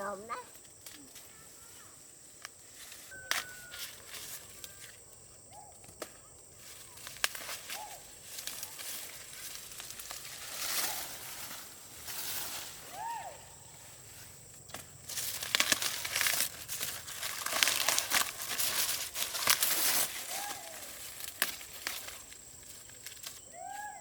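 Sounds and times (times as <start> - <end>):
dry plant material rustling: 0.0 - 24.0
short chirps: 3.0 - 4.9.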